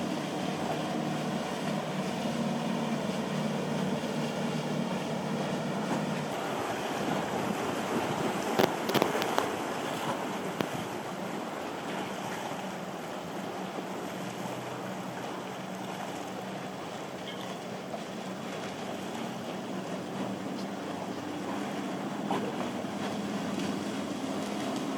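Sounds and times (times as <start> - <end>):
motorboat engine running: 0.0 - 24.9
waves breaking: 0.0 - 24.9.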